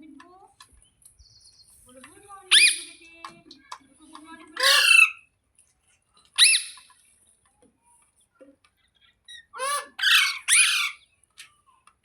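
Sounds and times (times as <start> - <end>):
parakeet screeching: 2.5 - 2.9, 4.6 - 5.2, 6.4 - 6.9, 9.3 - 11.0.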